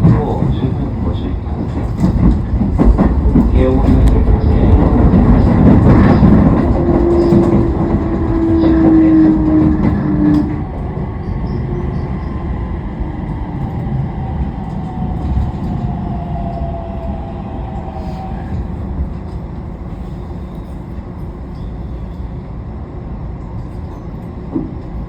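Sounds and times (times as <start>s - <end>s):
wheel-on-rail rumble: 0.0s - 22.2s
train inverter whine: 0.0s - 25.0s.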